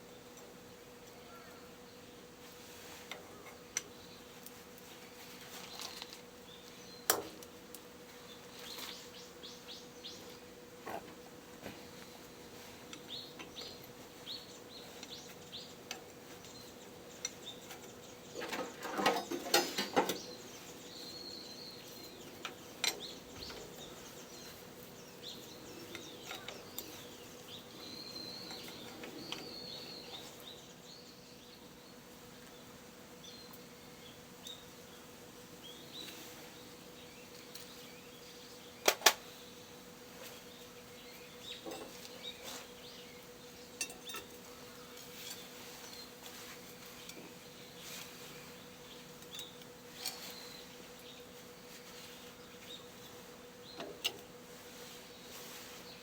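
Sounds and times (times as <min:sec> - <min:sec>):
steady low hum: 0:00.0 - 0:56.0
birds chirping: 0:03.3 - 0:56.0.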